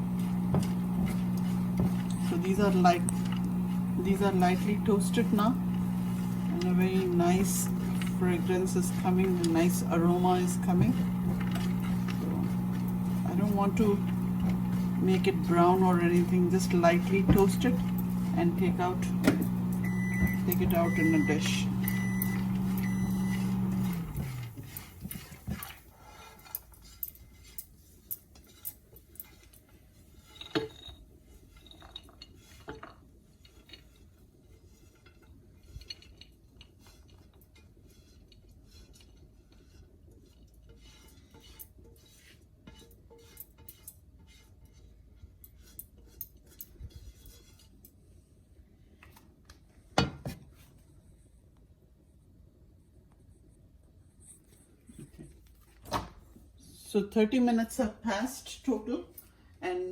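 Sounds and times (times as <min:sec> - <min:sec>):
low steady hum: 0:00.0 - 0:24.8
spoon scraping a pan: 0:00.0 - 0:47.8.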